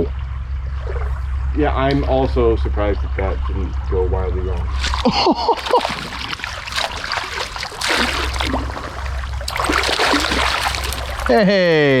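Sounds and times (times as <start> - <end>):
stream water rippling: 4.6 - 12.0.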